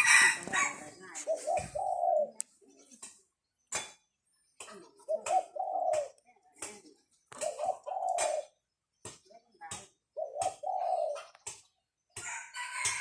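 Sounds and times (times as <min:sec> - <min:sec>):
rooster crows and clucks: 0:00.0 - 0:02.1, 0:12.2 - 0:13.0.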